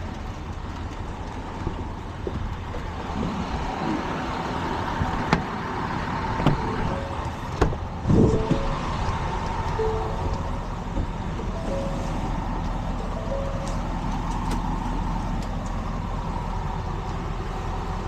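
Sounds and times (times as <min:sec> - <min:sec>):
motor vehicle running: 0:00.0 - 0:18.0.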